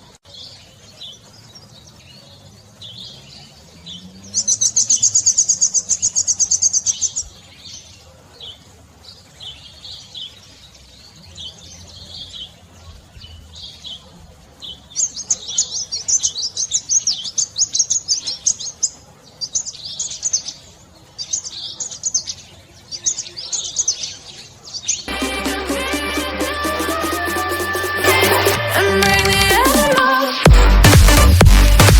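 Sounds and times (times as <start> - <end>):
small songbird chirping: 0.0 - 25.1.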